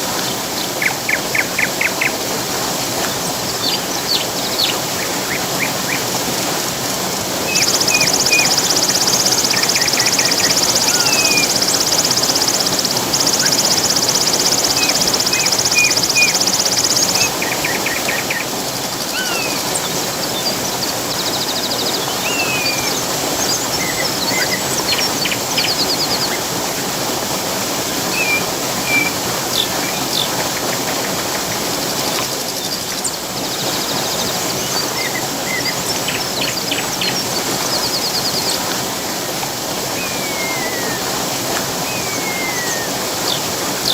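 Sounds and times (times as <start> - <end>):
rushing water: 0.0 - 43.9
songbirds chirping: 7.4 - 26.5.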